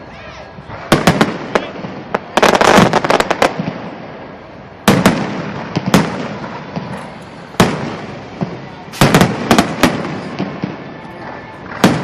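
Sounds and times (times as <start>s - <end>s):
fireworks exploding with bangs: 0.5s - 12.0s.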